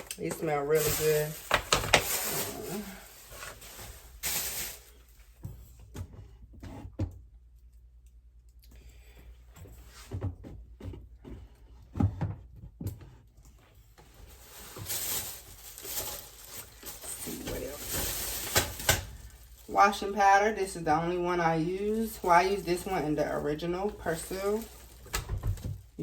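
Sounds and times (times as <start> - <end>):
items knocking and thumping: 0.0 - 2.5, 10.0 - 13.2, 24.9 - 26.0
shopping bags rustling: 0.0 - 5.4, 13.9 - 26.0.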